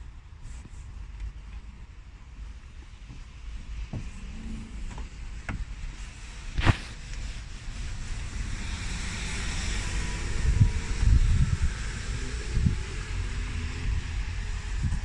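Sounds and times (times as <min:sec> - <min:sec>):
low rumble: 0:03.9 - 0:15.0.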